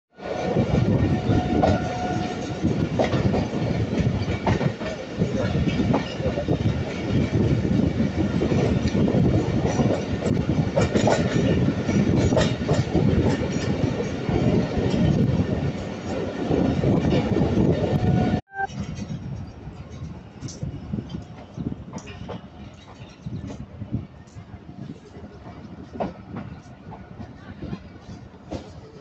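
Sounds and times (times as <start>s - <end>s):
train carriage rumble and rattle: 0.2s - 29.0s
short steady tone: 18.5s - 18.7s.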